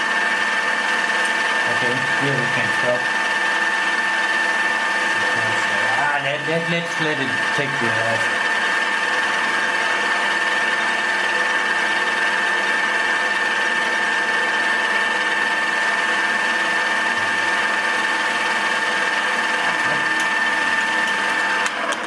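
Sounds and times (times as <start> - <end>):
milling machine whine: 0.0 - 22.0.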